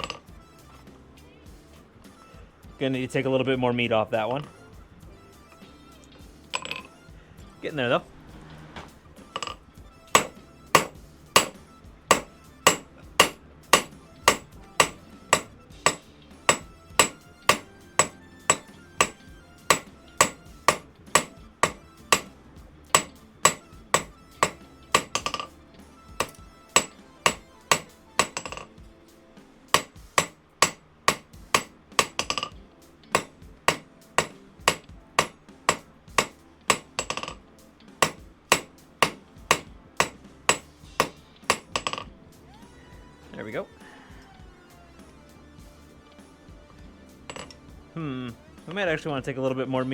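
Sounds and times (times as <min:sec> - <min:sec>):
hammer blows on steel on anvil: 0:00.0 - 0:00.4, 0:06.4 - 0:08.0, 0:09.2 - 0:29.0, 0:29.7 - 0:42.2, 0:47.2 - 0:47.7.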